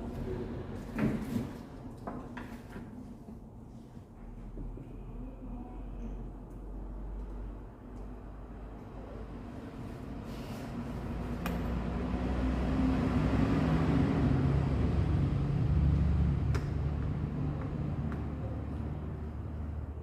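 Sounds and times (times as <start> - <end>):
vehicle engine passing by: 6.8 - 20.0.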